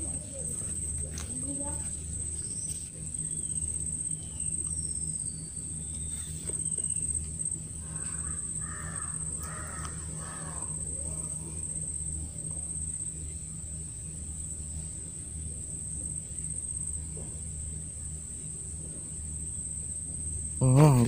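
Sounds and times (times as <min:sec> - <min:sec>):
steady high-pitched whine: 0:00.0 - 0:21.0.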